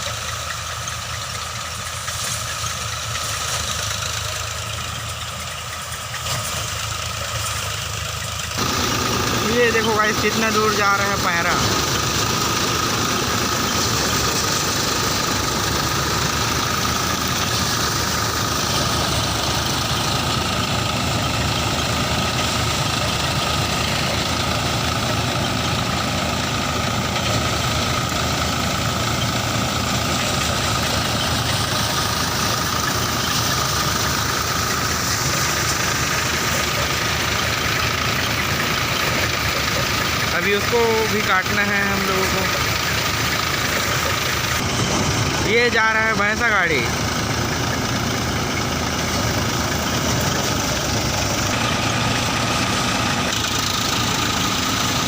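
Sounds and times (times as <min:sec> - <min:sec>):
harvesting machine engine running: 0:00.0 - 0:55.0
steady high whine: 0:08.6 - 0:20.2.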